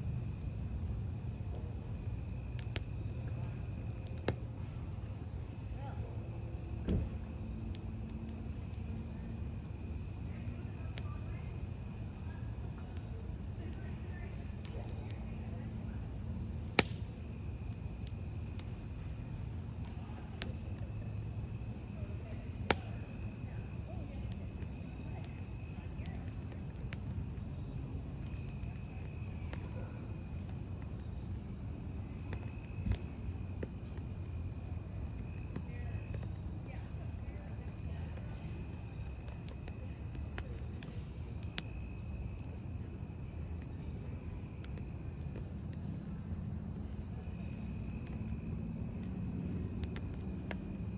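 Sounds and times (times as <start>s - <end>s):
campfire low rumble: 0.0s - 50.9s
crickets chirring: 0.0s - 50.9s
logs popping and cracking: 16.3s - 18.2s, 22.6s - 23.1s, 47.2s - 50.9s.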